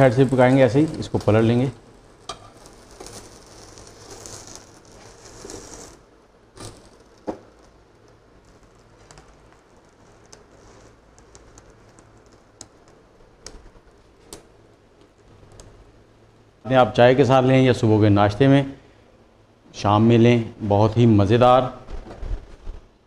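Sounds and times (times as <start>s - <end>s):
omelette sizzling in pan: 0.0s - 15.9s
crackles: 0.0s - 17.1s.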